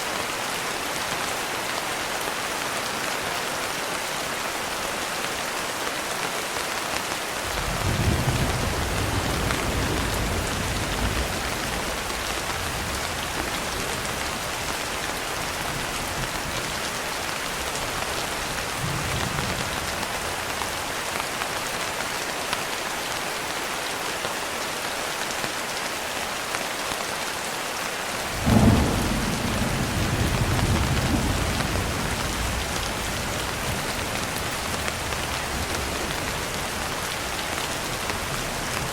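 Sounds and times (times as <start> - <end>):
heavy rain: 0.0 - 38.9
rolling thunder: 7.5 - 14.7, 28.3 - 36.5.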